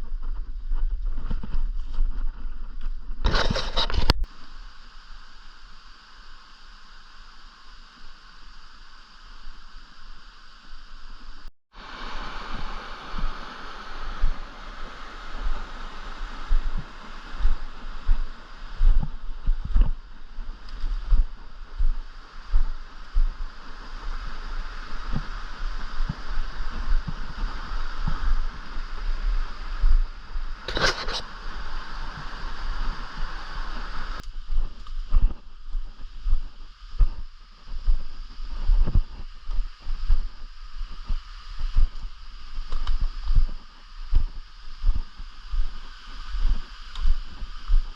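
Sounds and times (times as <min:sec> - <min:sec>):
stream water flowing: 0:04.2 - 0:34.7
low thumps on microphone: 0:16.5 - 0:23.4, 0:34.1 - 0:42.1.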